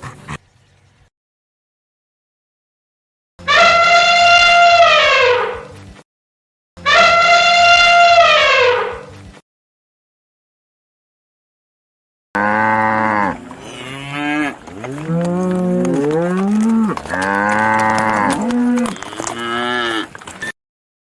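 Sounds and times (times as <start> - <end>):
cattle mooing: 12.4 - 20.2.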